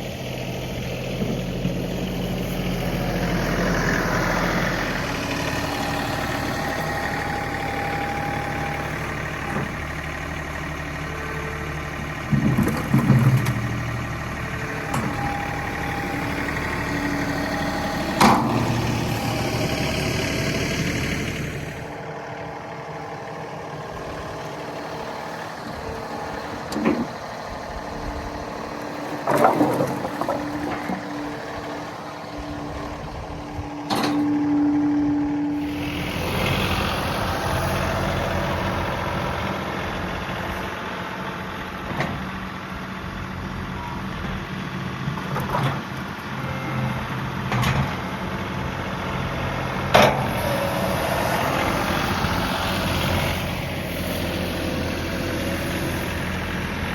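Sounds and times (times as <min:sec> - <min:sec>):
tractor diesel engine running: 0:00.0 - 0:56.9
clunks and knocks: 0:12.2 - 0:13.8, 0:25.8 - 0:27.6, 0:29.0 - 0:31.5, 0:47.4 - 0:48.0.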